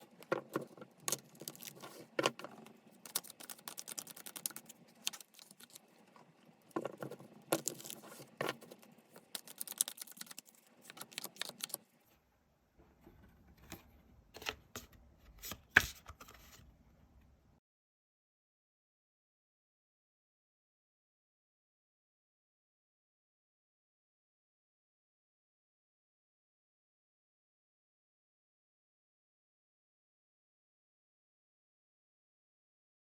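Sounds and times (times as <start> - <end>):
cards being shuffled: 0.3 - 5.9, 6.7 - 11.8.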